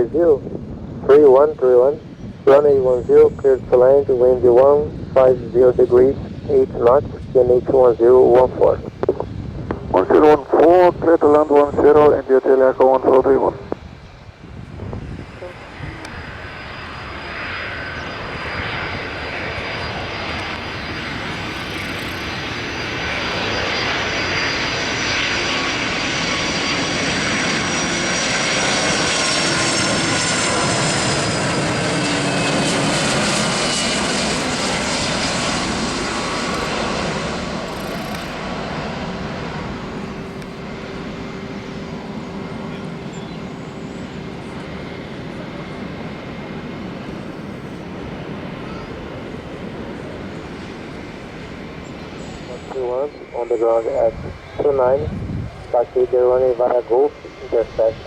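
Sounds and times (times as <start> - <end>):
jet engines passing by: 0.0 - 58.0.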